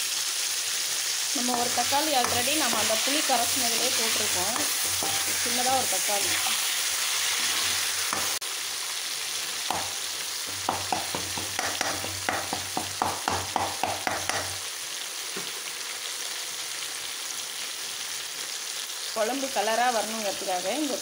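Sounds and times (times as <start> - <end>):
vegetables sizzling in hot oil: 0.0 - 21.0
spatula scraping a pan: 1.4 - 8.4.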